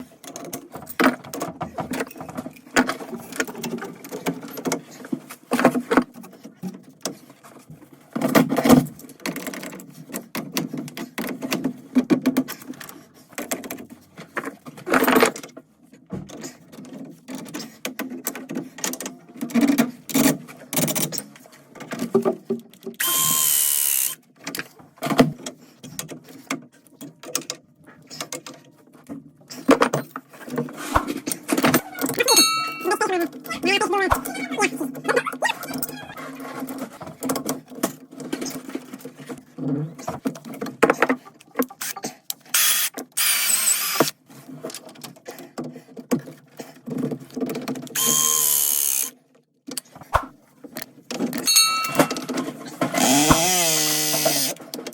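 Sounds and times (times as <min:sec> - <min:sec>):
tools and pipe fittings rattling: 0:00.0 - 0:23.4, 0:24.4 - 0:35.0, 0:49.0 - 0:54.9.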